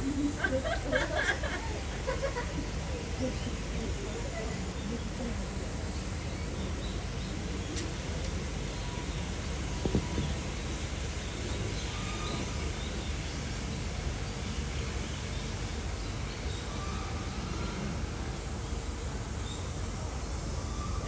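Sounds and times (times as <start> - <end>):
outdoor background noise: 0.0 - 21.0
faint bird chirps: 8.7 - 13.4.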